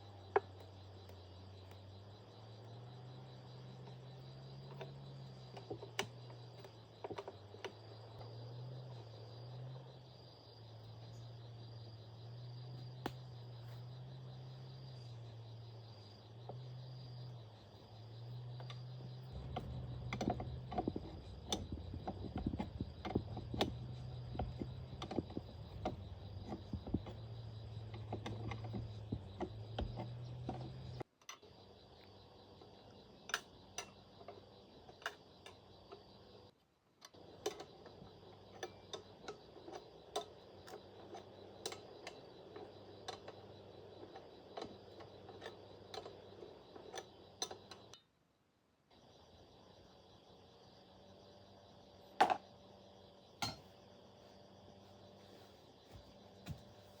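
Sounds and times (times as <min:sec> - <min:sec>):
steady low hum: 0:00.0 - 0:36.5, 0:48.9 - 0:57.0.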